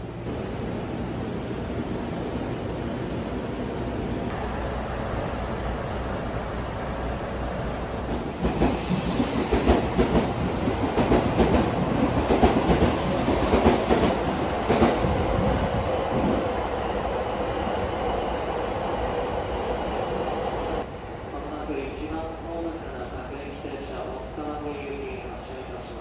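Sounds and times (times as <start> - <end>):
electric train wheels clacking: 7.9 - 15.5.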